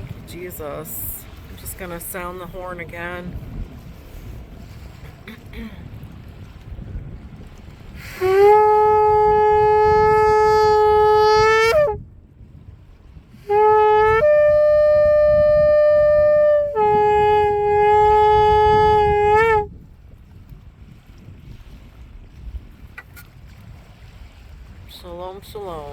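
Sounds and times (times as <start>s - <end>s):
shofar blasts: 8.0s - 12.0s, 13.4s - 19.7s.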